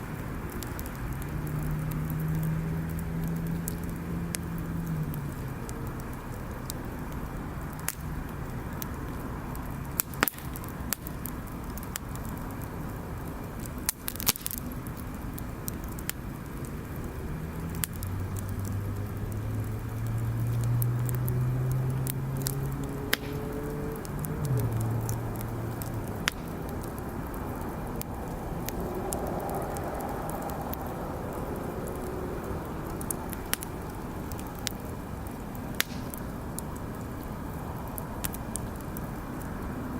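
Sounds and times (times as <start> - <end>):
sharp fire pops: 0.0 - 39.9
wood fire crackling: 0.0 - 39.9
vehicle engine passing: 0.2 - 6.8, 17.0 - 39.9.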